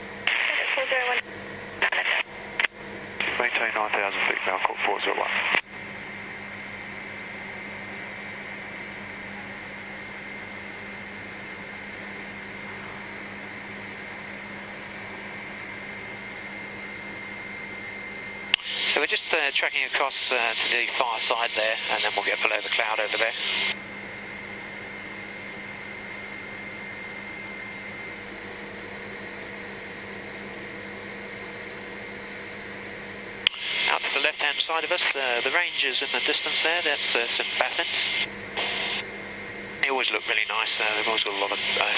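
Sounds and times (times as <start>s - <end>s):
helicopter cabin drone: 0.0s - 41.9s
thin high whine: 33.4s - 41.9s.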